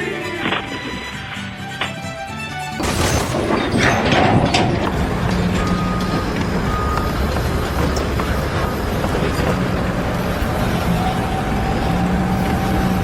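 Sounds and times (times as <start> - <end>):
heavy vehicle engine running: 2.5 - 13.0
site noise: 2.8 - 13.0.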